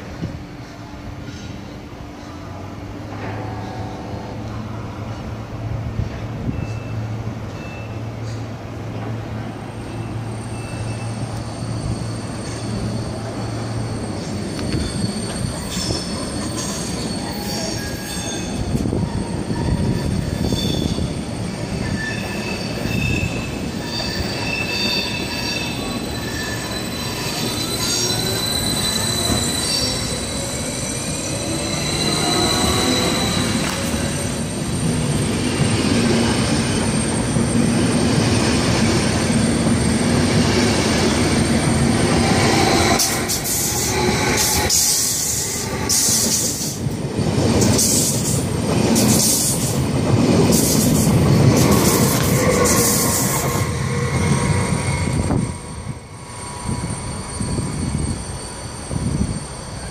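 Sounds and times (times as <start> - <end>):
train wheels rumbling on rails: 0.0 - 59.9
high-pitched wheel squeals: 9.8 - 35.0, 51.6 - 59.9
train whine rising: 10.2 - 59.9.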